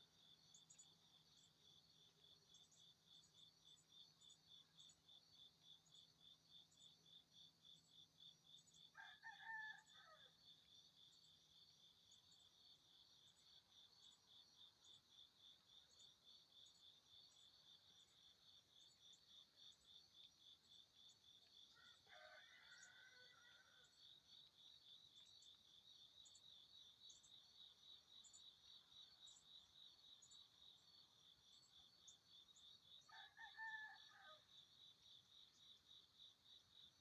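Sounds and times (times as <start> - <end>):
bird crowing: 21.8 - 23.9.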